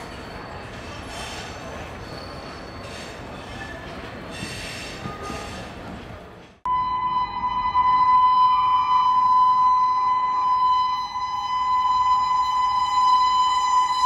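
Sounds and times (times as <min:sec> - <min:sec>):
faint high wheel squeals: 0:00.0 - 0:05.8
train wheels on rails: 0:00.0 - 0:06.6.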